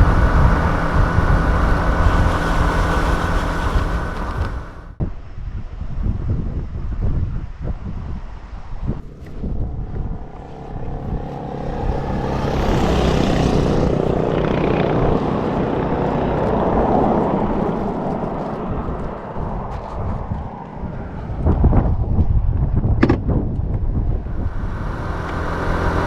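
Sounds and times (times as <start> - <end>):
scooter engine droning: 0.0 - 5.0, 9.0 - 26.0
wind rushing over microphone: 0.0 - 26.0.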